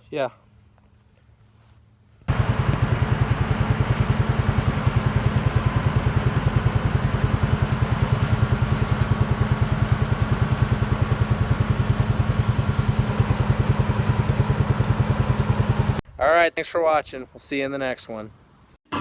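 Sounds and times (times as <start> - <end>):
engine running with low pulsing: 2.0 - 16.0.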